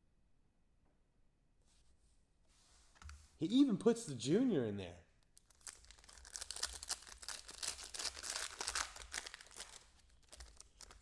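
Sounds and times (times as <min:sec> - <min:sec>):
packaging crinkling and tearing: 0:05.3 - 0:11.0.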